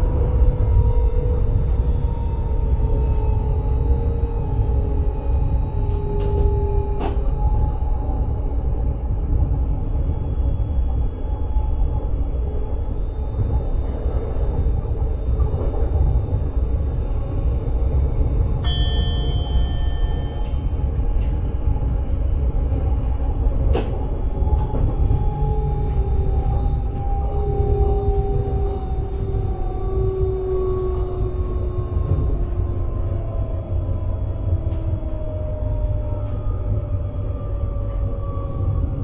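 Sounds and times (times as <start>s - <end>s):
train rumbling: 0.0s - 39.0s
faint steady tones: 0.5s - 23.0s
short steady tone: 18.7s - 20.6s.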